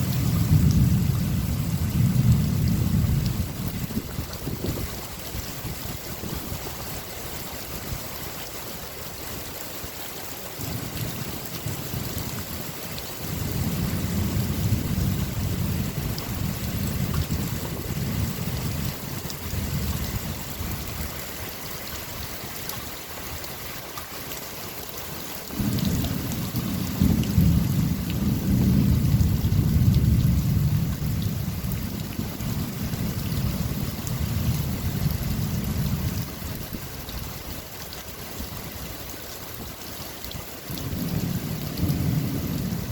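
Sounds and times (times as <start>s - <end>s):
rolling thunder: 0.0s - 4.9s, 13.3s - 20.7s, 25.5s - 36.2s, 40.8s - 42.9s
rain pattering: 0.0s - 42.9s.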